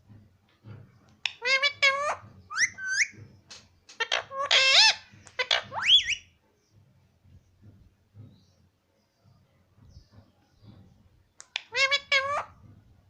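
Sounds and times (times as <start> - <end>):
parrot chirping shrilly: 1.3 - 3.1, 4.0 - 6.3, 11.6 - 12.6.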